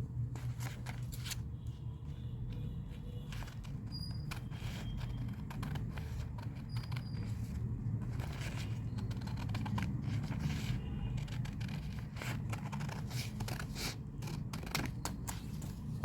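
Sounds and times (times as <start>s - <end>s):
scissors snipping paper: 8.1s - 15.5s.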